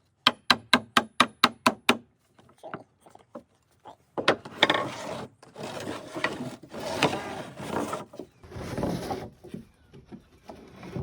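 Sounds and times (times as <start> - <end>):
wooden boards scraping together: 4.4 - 9.7.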